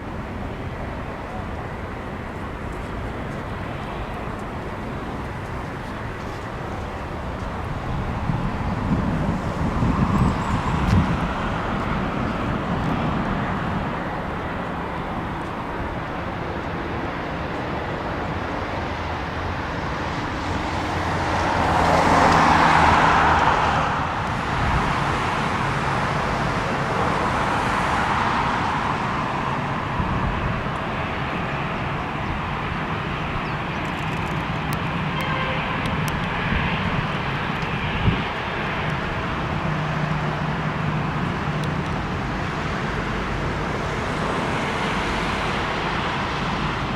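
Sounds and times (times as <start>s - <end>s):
distant vehicle noise: 0.0s - 46.9s.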